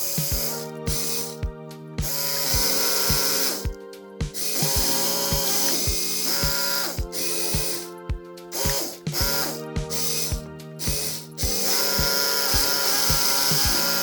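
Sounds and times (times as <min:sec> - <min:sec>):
electronic music with kick drum: 0:00.0 - 0:14.0.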